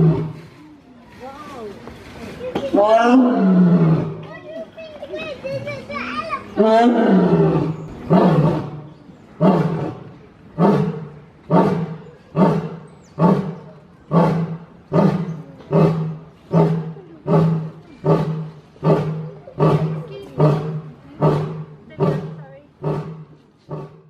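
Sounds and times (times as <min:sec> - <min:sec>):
lion roaring grunts: 0:09.4 - 0:24.0.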